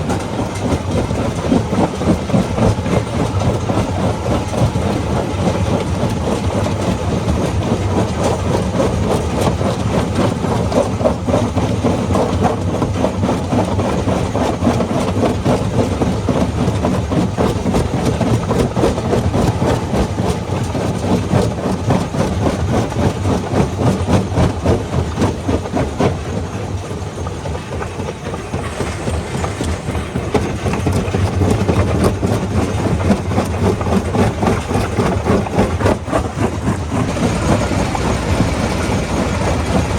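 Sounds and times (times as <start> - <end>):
low engine hum: 0.0 - 39.9.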